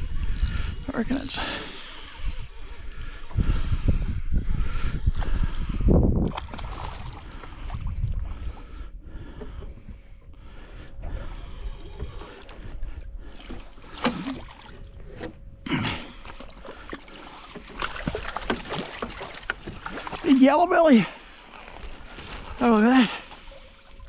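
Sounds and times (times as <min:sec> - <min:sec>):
water splashing beside boat: 0:06.2 - 0:08.6, 0:11.4 - 0:24.0.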